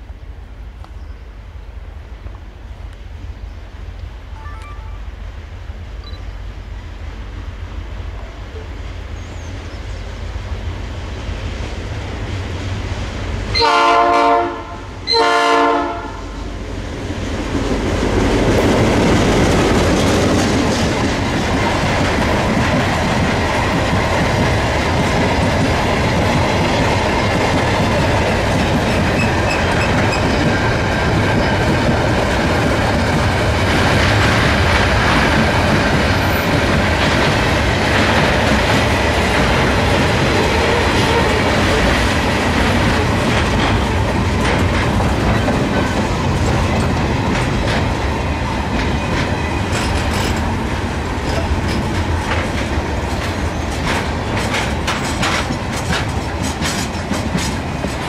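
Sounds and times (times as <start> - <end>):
locomotive horn blasts: 13.6 - 16.4
train wheels clattering on rails: 16.4 - 58.0.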